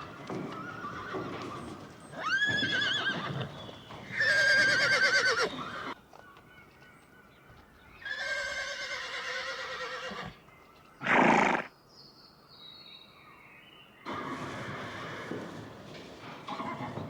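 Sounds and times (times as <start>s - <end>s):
horse whinnying: 0.0s - 6.0s, 8.0s - 10.4s, 11.0s - 11.7s, 14.1s - 15.7s, 16.4s - 17.0s.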